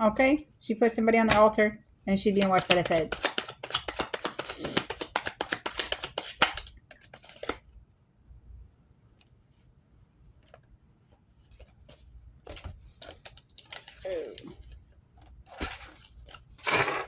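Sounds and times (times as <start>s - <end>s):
card taps and flicks: 2.3s - 7.6s
cards being shuffled: 2.3s - 7.6s.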